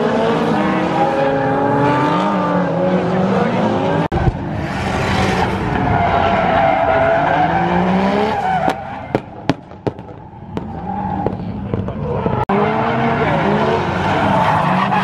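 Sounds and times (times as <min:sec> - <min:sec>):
car engine at high revs: 0:00.0 - 0:09.4, 0:10.3 - 0:15.0.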